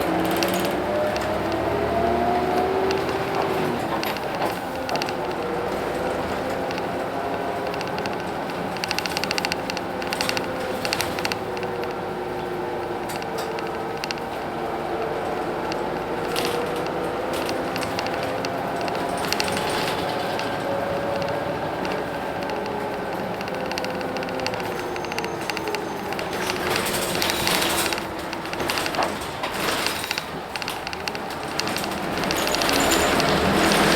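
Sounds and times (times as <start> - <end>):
bus engine running with whine: 0.0 - 33.9
rapid rattling: 0.0 - 33.9.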